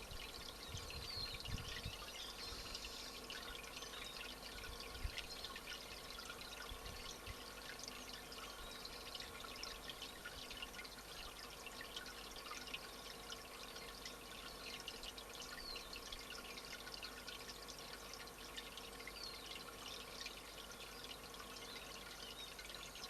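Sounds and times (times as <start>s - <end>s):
small birds chirping: 0.0s - 11.4s
water trickling: 0.0s - 23.0s.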